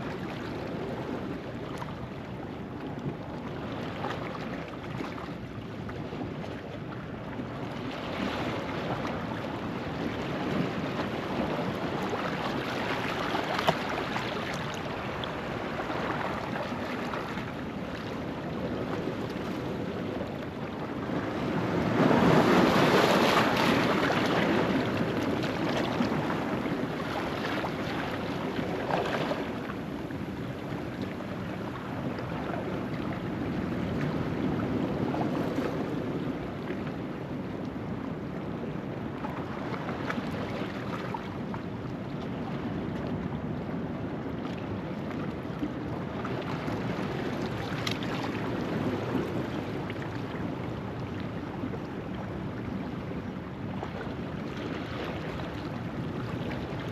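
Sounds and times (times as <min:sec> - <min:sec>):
waves washing over rocks: 0:20.8 - 0:35.6.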